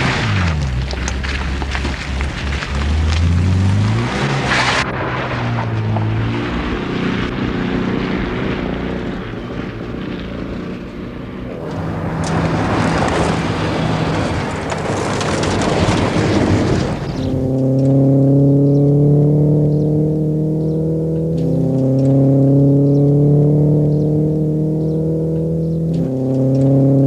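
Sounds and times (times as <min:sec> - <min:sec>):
heavy rushing noise: 0:00.0 - 0:20.7
rally car engine running hard: 0:00.0 - 0:27.0.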